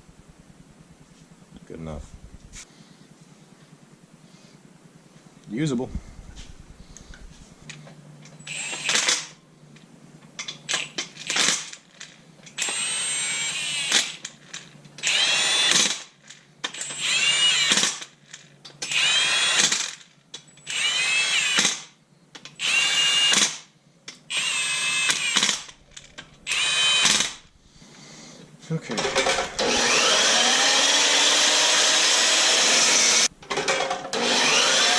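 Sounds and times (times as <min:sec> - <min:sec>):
power drill whining: 0:08.4 - 0:09.3, 0:12.6 - 0:14.4, 0:15.0 - 0:16.1, 0:16.7 - 0:18.2, 0:18.8 - 0:20.0, 0:20.6 - 0:21.8, 0:22.5 - 0:23.5, 0:24.3 - 0:27.6, 0:29.0 - 0:33.3, 0:34.1 - 0:34.9.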